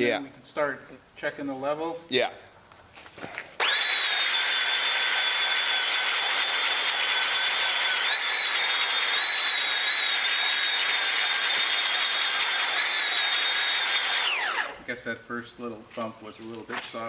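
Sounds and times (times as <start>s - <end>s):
belt sander sanding wood: 3.6s - 14.9s.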